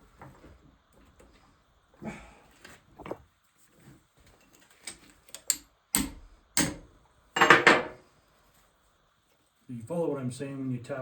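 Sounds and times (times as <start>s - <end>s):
hammer tapping metal: 5.4s - 6.8s.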